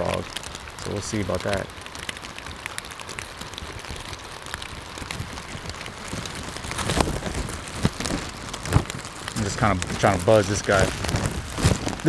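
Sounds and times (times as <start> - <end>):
rain falling on pond: 0.0 - 12.0.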